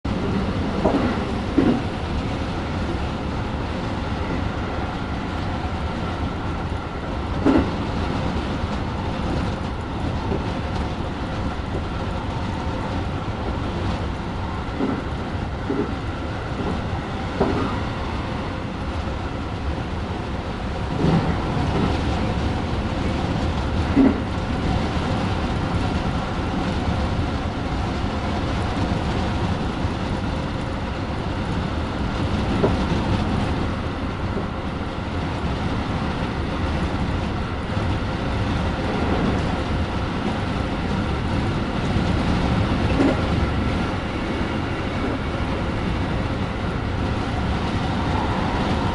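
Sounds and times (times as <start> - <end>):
train wheels rumbling on rail: 0.0 - 48.9
knocks from the track: 0.8 - 1.9, 7.4 - 7.8, 17.4 - 17.8.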